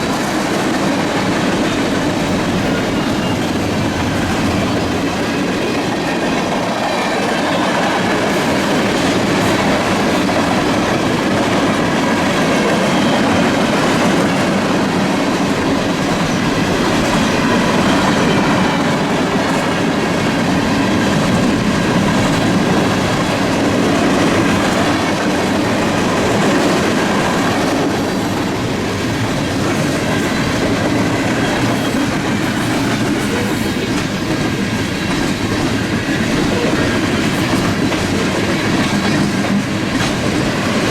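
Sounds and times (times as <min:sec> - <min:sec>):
freight train wheels rumbling: 0:00.0 - 0:40.9
high wheel squeal: 0:02.5 - 0:03.9.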